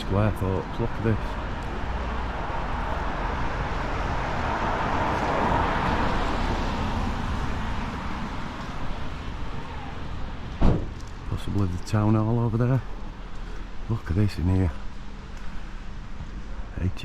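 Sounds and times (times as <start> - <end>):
car passing by: 1.2 - 10.9.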